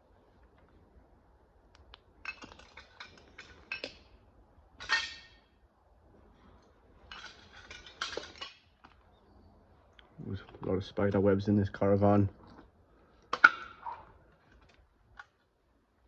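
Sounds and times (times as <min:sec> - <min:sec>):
small hard objects clinking: 0:02.2 - 0:04.1, 0:07.1 - 0:09.0.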